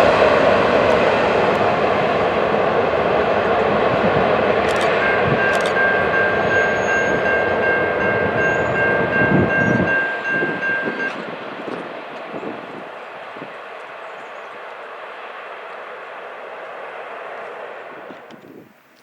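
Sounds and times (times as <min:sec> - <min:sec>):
passing train rumble: 0:00.0 - 0:19.0
locomotive horn chord: 0:04.9 - 0:11.4.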